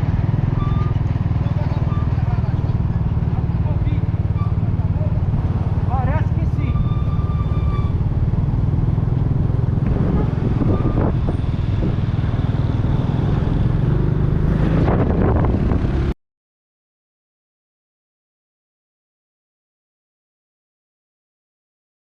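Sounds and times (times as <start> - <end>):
vehicle rumble: 0.0 - 16.2
wind buffeting microphone: 8.0 - 16.1.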